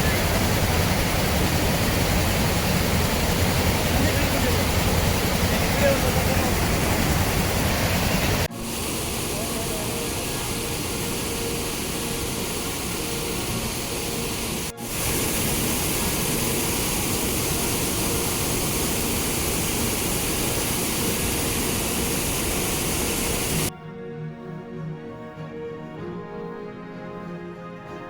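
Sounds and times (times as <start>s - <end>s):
waterfall rushing water: 0.0s - 23.7s
music: 8.4s - 18.6s, 23.7s - 28.0s.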